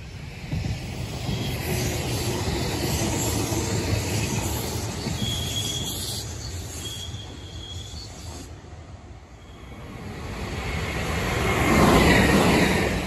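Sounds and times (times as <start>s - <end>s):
train wheels rumbling on rails: 0.0s - 13.0s
high wheel squeal: 3.3s - 8.5s.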